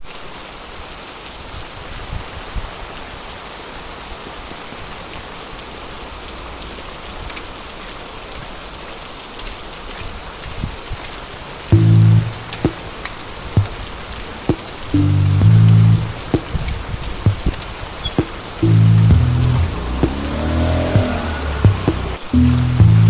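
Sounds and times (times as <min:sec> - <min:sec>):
steady rain falling: 0:00.0 - 0:23.0
sharp raindrop taps: 0:06.6 - 0:23.0.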